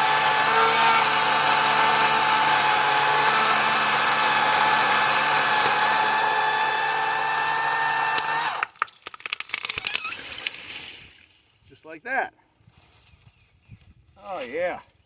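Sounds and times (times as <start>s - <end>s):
electric chainsaw cutting wood: 0.0s - 8.8s
sharp cracks and clicks: 8.0s - 10.6s.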